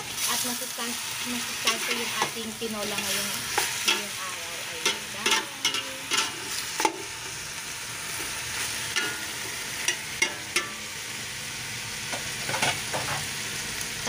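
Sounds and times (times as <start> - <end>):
chicken sizzling in oil: 0.0 - 14.0.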